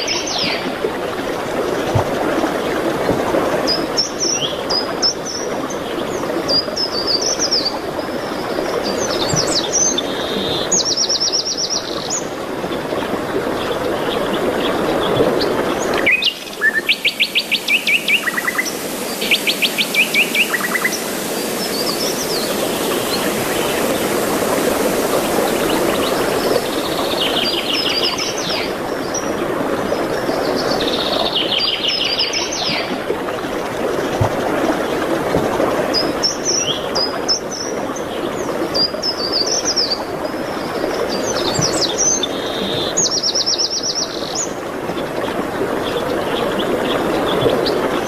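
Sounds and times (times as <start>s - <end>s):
songbirds trilling: 13.6s - 29.3s
steady background hiss: 16.1s - 29.0s.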